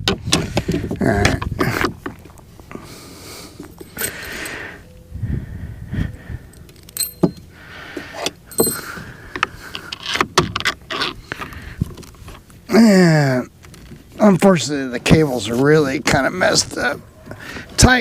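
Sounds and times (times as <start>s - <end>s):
small clicks and rattles of parts: 6.5s - 7.5s
rustling and scraping: 6.5s - 12.7s, 13.5s - 17.9s.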